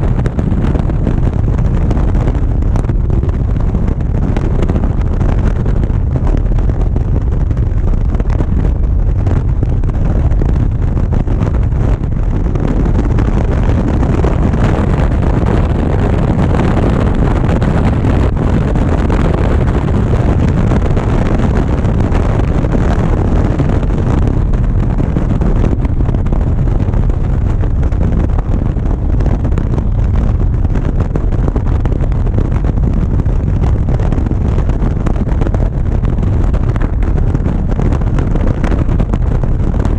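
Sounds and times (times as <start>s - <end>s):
road noise: 0.0s - 39.9s
wind rushing over microphone: 0.0s - 39.9s.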